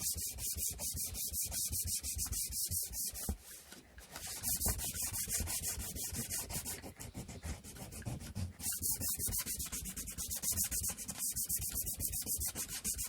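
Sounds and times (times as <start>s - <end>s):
sandpaper rubbing on wood: 4.3s - 13.0s.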